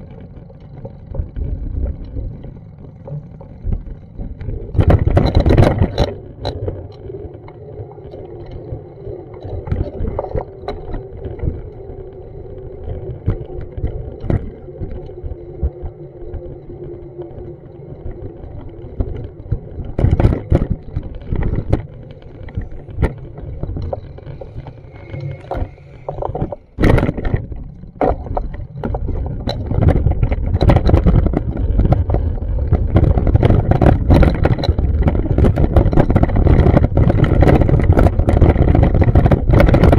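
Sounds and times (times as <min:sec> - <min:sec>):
wind buffeting microphone: 0:04.2 - 0:06.6, 0:19.9 - 0:39.9.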